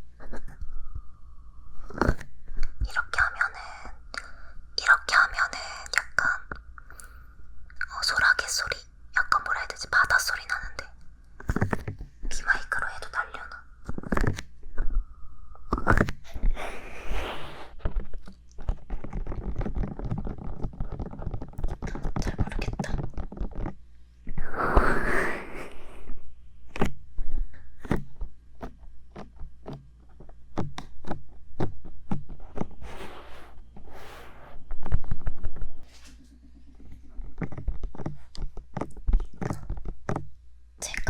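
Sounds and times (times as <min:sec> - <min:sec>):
rubbing swishes on microphone: 0:16.2 - 0:21.4, 0:32.4 - 0:36.2.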